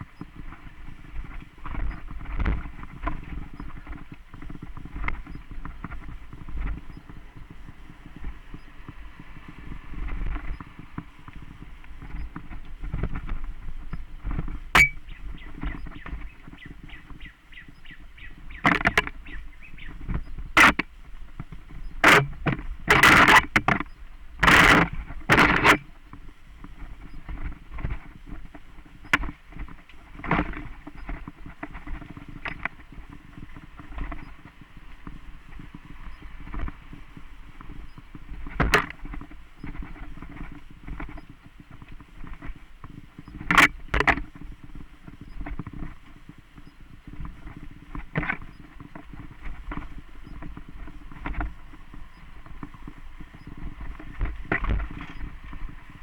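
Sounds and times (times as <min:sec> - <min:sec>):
bike rolling on dirt trail: 0:00.0 - 0:56.0
bike knocks and rattles: 0:14.4 - 0:16.6, 0:21.5 - 0:25.8.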